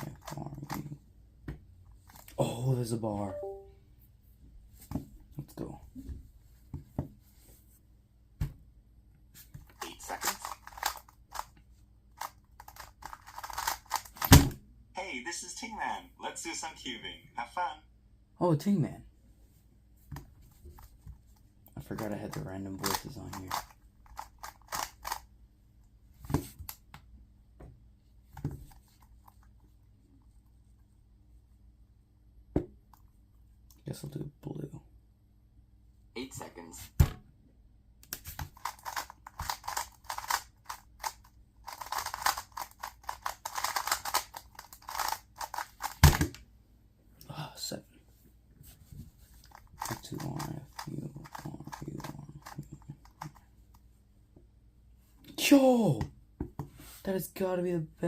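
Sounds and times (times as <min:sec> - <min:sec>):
plastic puzzle cube clicking: 0:10.1 - 0:11.5, 0:12.2 - 0:14.3, 0:22.8 - 0:25.2, 0:38.5 - 0:46.0.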